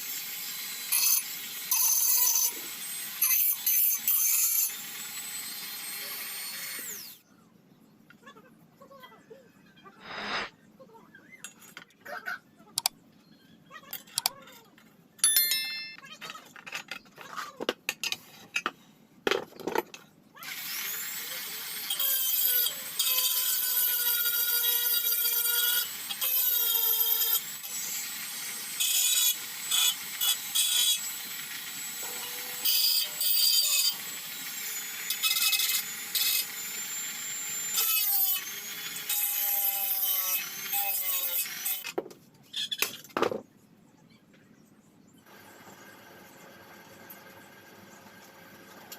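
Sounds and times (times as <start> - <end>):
power tool working steel: 0.0 - 7.2, 10.0 - 10.5, 20.6 - 41.8.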